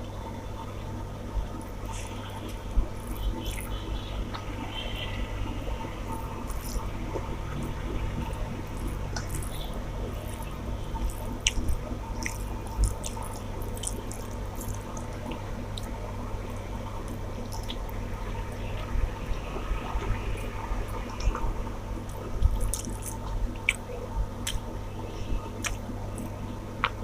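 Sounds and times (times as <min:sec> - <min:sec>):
steady low hum: 0:00.0 - 0:27.0
person eating wet squishing: 0:01.6 - 0:05.2, 0:06.0 - 0:19.0, 0:20.0 - 0:27.0.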